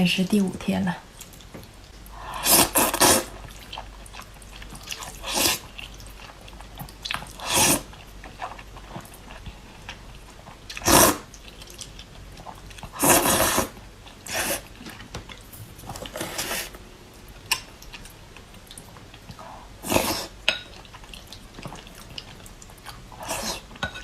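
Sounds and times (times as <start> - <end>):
noodle slurping: 2.4 - 3.4, 10.7 - 11.3, 12.9 - 13.7
chewing: 2.6 - 13.4, 17.3 - 24.0.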